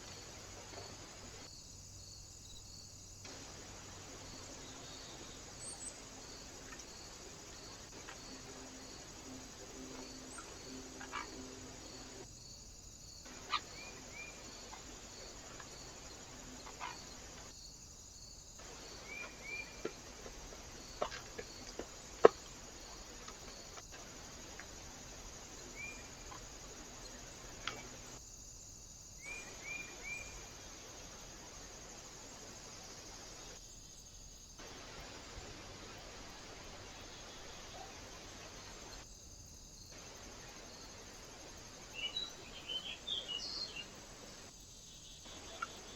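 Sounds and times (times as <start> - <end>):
faint insect-like ticking: 0.0 - 45.9
steady hiss: 0.0 - 45.9
small birds chirping: 2.4 - 12.2, 13.3 - 17.5, 18.6 - 28.2, 40.0 - 45.9.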